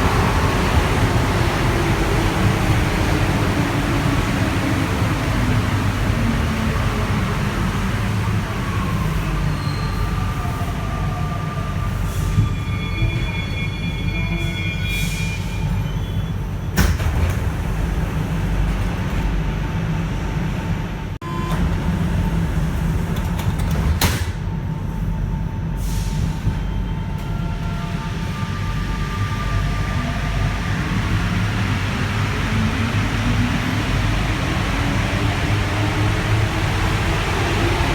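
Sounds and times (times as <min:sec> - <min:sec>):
metro train rumble: 0:00.0 - 0:37.9.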